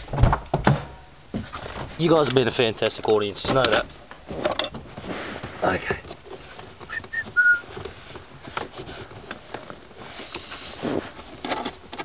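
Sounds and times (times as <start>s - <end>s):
short whistle-like notes: 6.9s - 7.6s.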